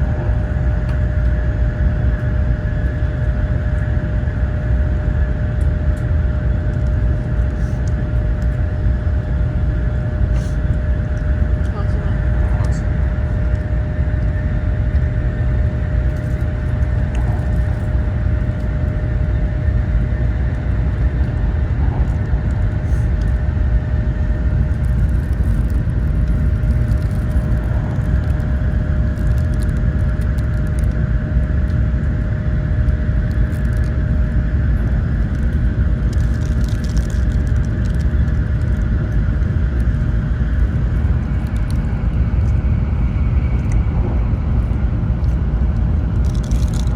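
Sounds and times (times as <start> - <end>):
mid-pitched hum: 0.0 - 46.9.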